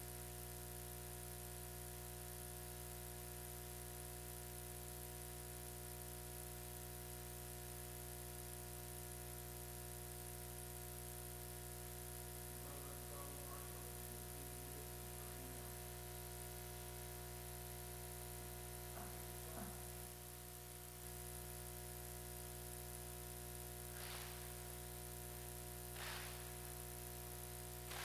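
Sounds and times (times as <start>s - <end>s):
electrical hum and buzz: 0.0s - 28.0s
faint indistinct voices: 12.6s - 15.9s.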